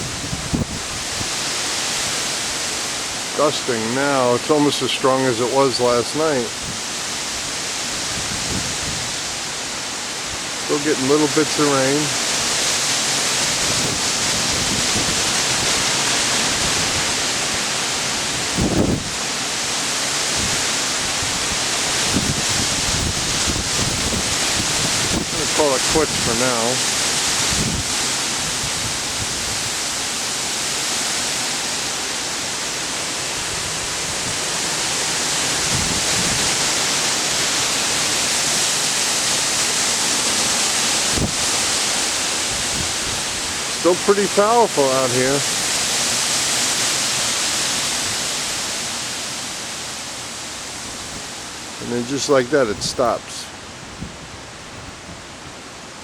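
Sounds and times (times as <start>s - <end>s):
wind buffeting microphone: 0.0s - 2.7s, 6.5s - 10.6s, 12.2s - 30.2s, 33.2s - 38.2s, 39.1s - 43.8s, 50.6s - 55.9s
strong gusty wind: 0.0s - 56.0s.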